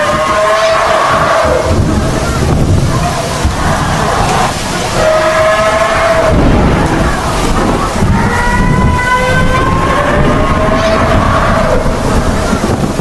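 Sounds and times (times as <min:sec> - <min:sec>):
vehicle horns blasting: 0:00.0 - 0:01.7, 0:04.9 - 0:06.6
rain: 0:00.0 - 0:13.0
traffic: 0:00.0 - 0:13.0.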